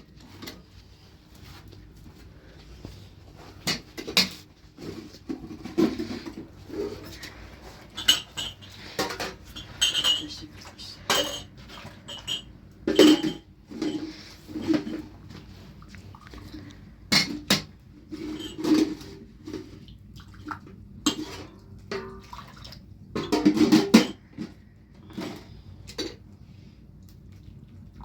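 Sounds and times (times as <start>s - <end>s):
dishes and utensils clinking: 3.6s - 15.2s, 17.1s - 19.2s, 23.2s - 24.3s.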